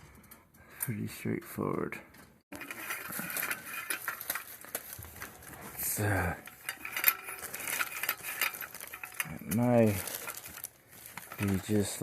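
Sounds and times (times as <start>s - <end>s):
small metal parts rattling: 2.5s - 12.0s.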